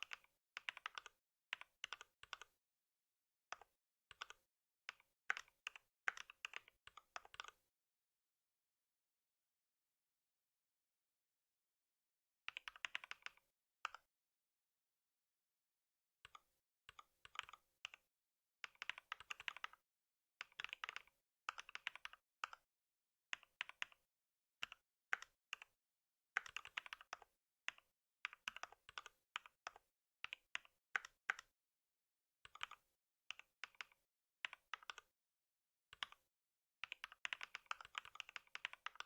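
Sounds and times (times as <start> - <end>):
typing on computer keyboard: 0.0 - 2.5, 3.5 - 7.6, 12.5 - 14.0, 18.6 - 19.8, 20.4 - 22.6, 26.4 - 31.5, 32.5 - 35.1, 36.8 - 39.0.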